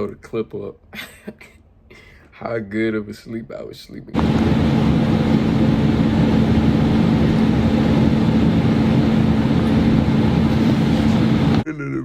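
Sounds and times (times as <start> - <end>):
loud mechanical drone: 4.2 - 11.6.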